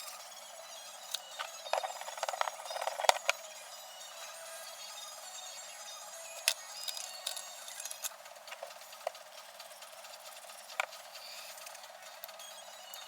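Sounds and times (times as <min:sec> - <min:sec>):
clicks of small hard objects: 0:01.1 - 0:03.4, 0:06.4 - 0:09.2.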